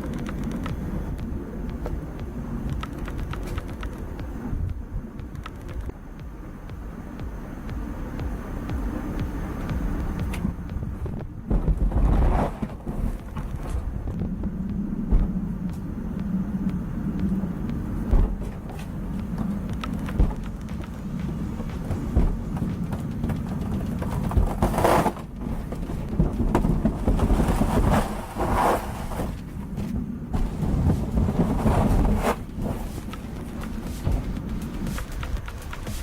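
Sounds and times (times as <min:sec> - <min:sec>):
sharp knocks: 0:00.0 - 0:28.0
engine running with low rumble: 0:00.0 - 0:36.0.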